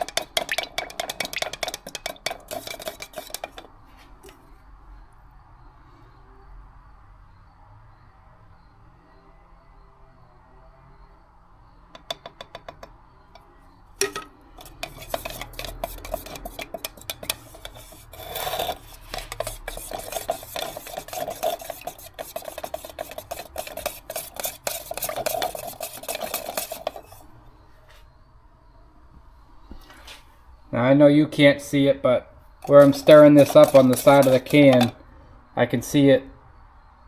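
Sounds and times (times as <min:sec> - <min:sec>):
stick scraping in paint can: 0:00.0 - 0:04.4, 0:14.0 - 0:27.3, 0:32.5 - 0:35.0.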